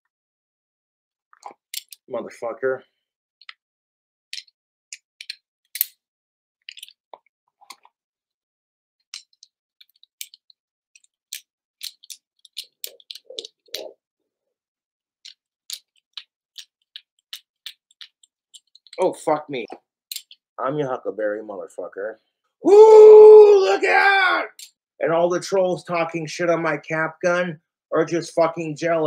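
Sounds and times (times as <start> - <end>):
toy cap gun clicking and snapping: 5.2 - 6.0.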